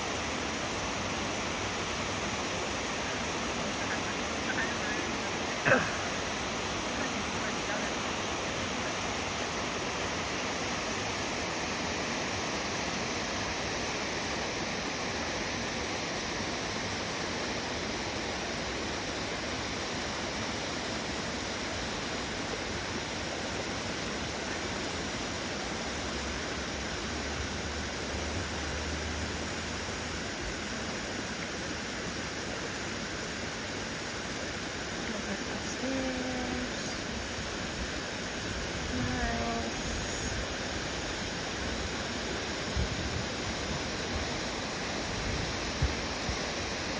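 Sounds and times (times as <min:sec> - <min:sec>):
waterfall rushing: 0:00.0 - 0:46.9
faint voice: 0:03.6 - 0:06.2, 0:06.9 - 0:08.1, 0:38.9 - 0:40.4.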